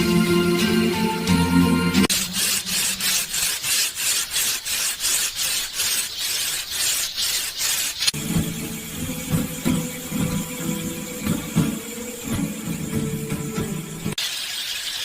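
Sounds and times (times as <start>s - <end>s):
music: 0.0s - 2.1s, 8.2s - 14.2s
hand tool rasping wood: 2.1s - 14.1s.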